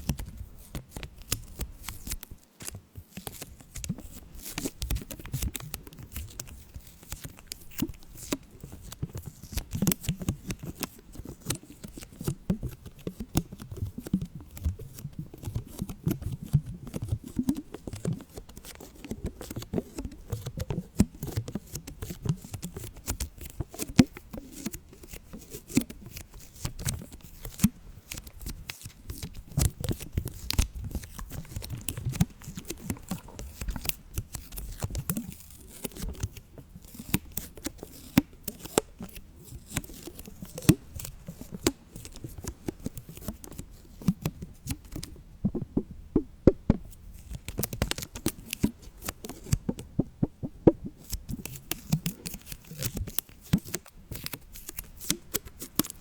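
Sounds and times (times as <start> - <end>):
crackling and rustling clicks: 0.0 - 56.0.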